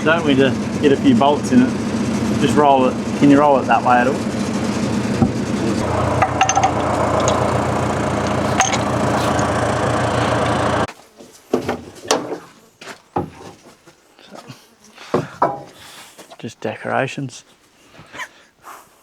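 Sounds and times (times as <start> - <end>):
engine running: 0.0 - 10.9
knocks and metal clinks: 5.8 - 10.9.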